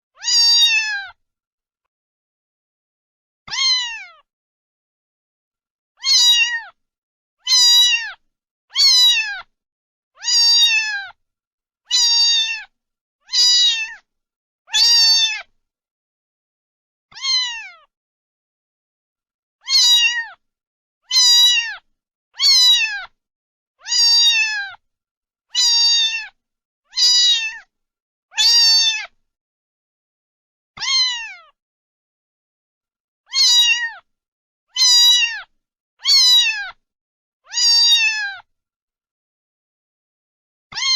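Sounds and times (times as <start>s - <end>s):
cat meowing: 0.2s - 1.2s, 3.5s - 4.3s, 6.0s - 6.8s, 7.4s - 9.5s, 10.2s - 11.2s, 11.9s - 14.0s, 14.7s - 15.5s, 17.1s - 17.9s, 19.6s - 20.4s, 21.1s - 23.2s, 23.8s - 24.8s, 25.5s - 27.7s, 28.3s - 29.2s, 30.8s - 31.6s, 33.3s - 34.1s, 34.7s - 36.8s, 37.5s - 38.5s.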